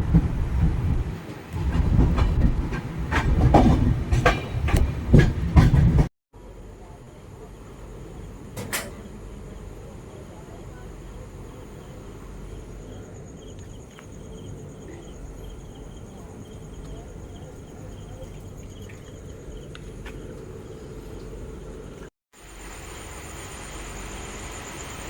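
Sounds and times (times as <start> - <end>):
insects chirping: 7.4 - 25.0.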